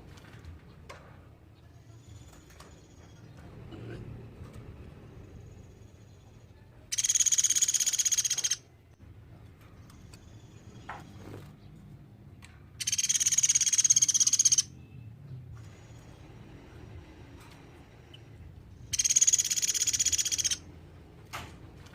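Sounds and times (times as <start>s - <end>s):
woodpecker rattling trills: 6.9s - 8.6s, 12.8s - 14.7s, 18.8s - 20.7s.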